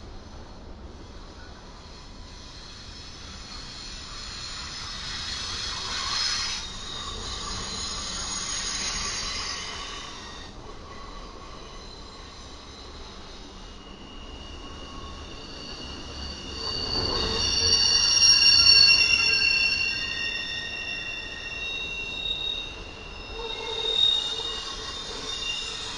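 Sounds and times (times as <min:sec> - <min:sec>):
rumble of train cars: 0:00.0 - 0:25.9
train wheels squealing: 0:00.0 - 0:25.9.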